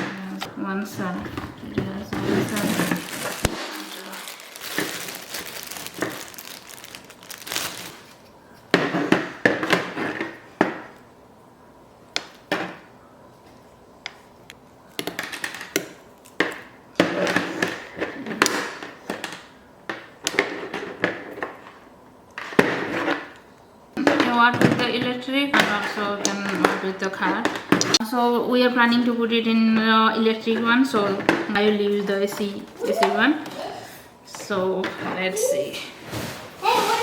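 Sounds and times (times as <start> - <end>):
rustling: 0.8 - 11.1, 28.7 - 37.0.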